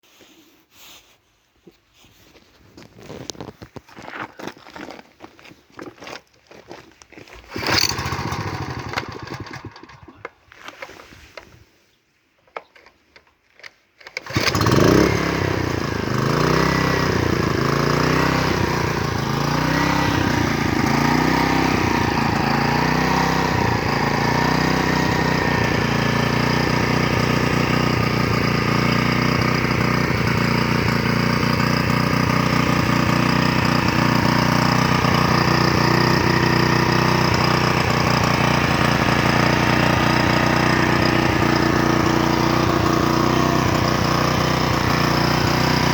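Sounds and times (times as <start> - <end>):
small pump engine running: 7.4 - 10.3, 14.0 - 45.9.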